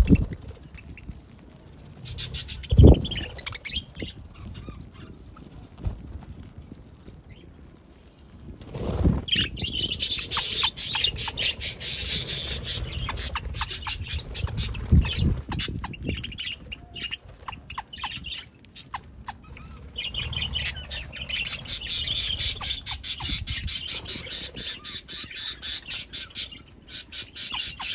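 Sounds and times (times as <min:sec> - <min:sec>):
budgerigars chattering and squawking: 0:02.1 - 0:05.2, 0:09.3 - 0:27.9.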